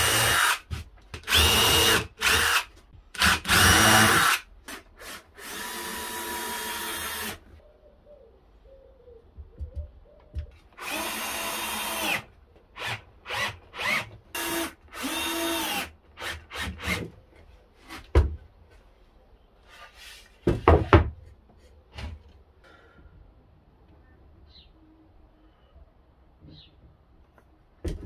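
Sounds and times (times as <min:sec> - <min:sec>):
power drill driving screws into wood: 0:00.0 - 0:07.5, 0:10.8 - 0:17.1.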